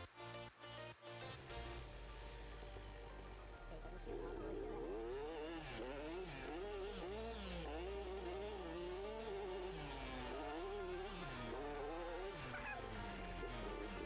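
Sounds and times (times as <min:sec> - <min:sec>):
motorcycle engine revving: 0:01.4 - 0:14.0.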